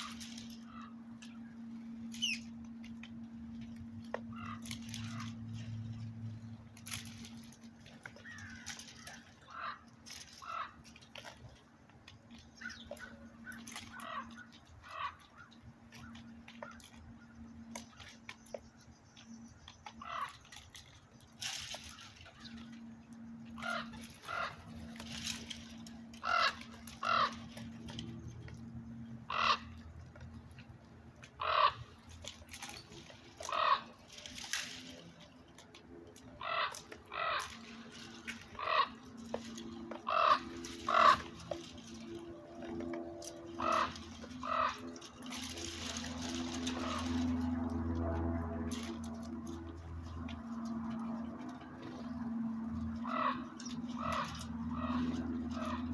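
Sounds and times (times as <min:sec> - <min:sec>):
birds giving harsh calls: 0:00.0 - 0:48.0, 0:48.7 - 0:55.9.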